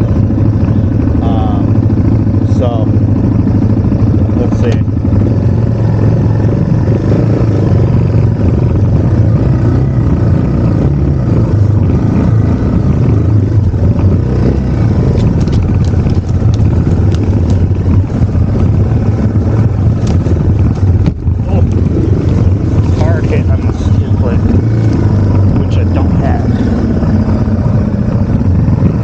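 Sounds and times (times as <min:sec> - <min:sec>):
motorcycle engine running: 0:00.0 - 0:29.0
sharp ticks and snaps: 0:04.4 - 0:25.6.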